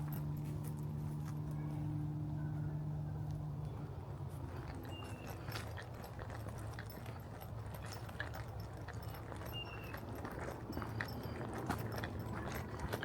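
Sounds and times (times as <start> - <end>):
footsteps on a trail: 0.0 - 2.0, 3.3 - 13.0.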